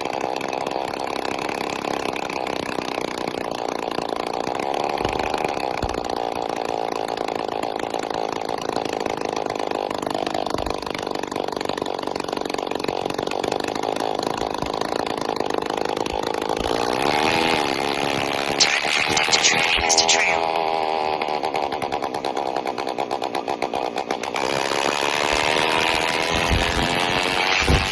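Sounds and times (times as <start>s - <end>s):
raspy two-stroke engine running: 0.0s - 27.9s
sharp high noises: 18.5s - 21.0s.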